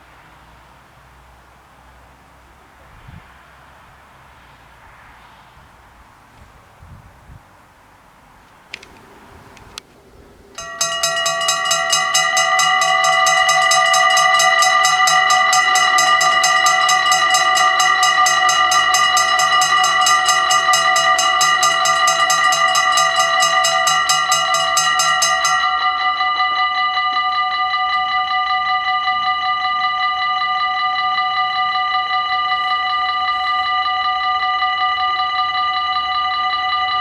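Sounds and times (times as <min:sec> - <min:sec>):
level-crossing warning bells clanging: 0:08.8 - 0:37.0.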